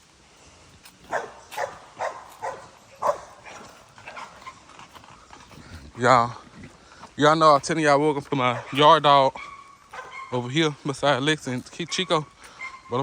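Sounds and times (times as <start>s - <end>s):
faint yard sounds: 0.0s - 13.0s
dog barking: 1.1s - 4.5s, 8.4s - 10.8s, 11.8s - 13.0s.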